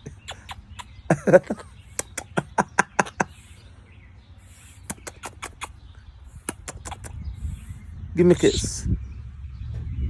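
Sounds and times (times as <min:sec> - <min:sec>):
parrot clicking smacks: 0:02.0 - 0:03.3, 0:04.8 - 0:05.8, 0:06.4 - 0:07.2
parrot breathy hisses: 0:03.2 - 0:03.7, 0:04.4 - 0:07.9.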